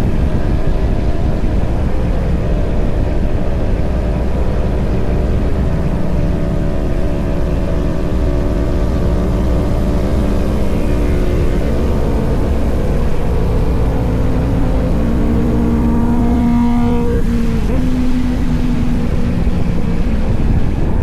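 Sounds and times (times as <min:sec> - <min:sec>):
low rumble: 0:00.0 - 0:21.0
motorcycle engine running: 0:00.0 - 0:21.0.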